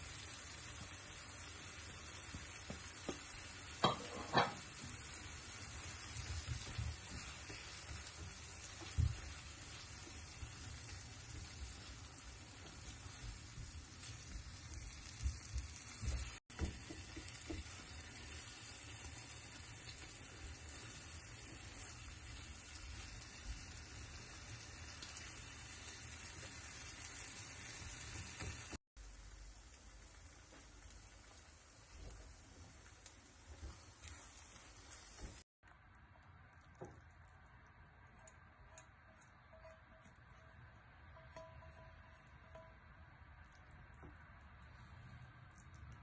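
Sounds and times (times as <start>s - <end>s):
food sizzling in a pan: 0.0s - 35.5s.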